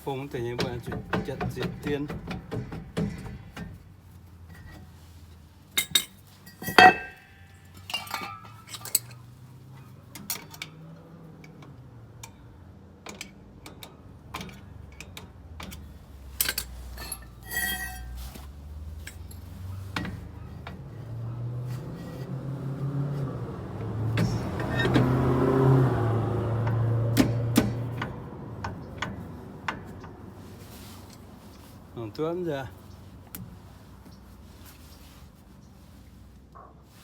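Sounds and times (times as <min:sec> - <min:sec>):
metal tools clinking: 0:05.7 - 0:09.4, 0:16.3 - 0:20.1.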